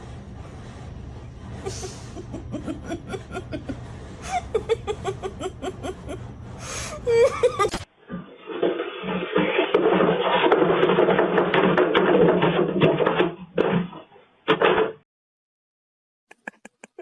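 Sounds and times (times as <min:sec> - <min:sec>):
steady low hum: 0:00.0 - 0:07.9
rapid laughing sounds: 0:01.6 - 0:07.9, 0:16.3 - 0:17.0.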